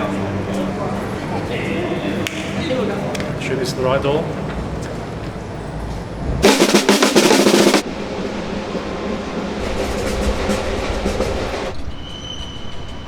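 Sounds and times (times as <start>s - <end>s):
quiet drumming: 6.2s - 11.7s
rapid drum roll: 6.2s - 11.8s.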